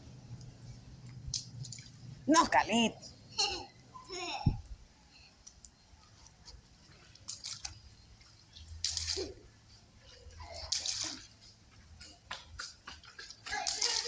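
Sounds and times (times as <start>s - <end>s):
feet splashing in puddles: 6.2s - 14.0s.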